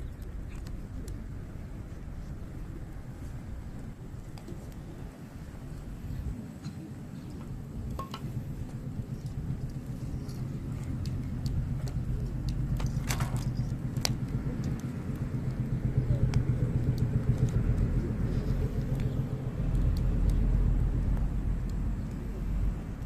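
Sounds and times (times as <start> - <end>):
campfire crackling: 0.0 - 23.0
burning wood popping: 7.3 - 23.0
low rumble: 7.4 - 23.0.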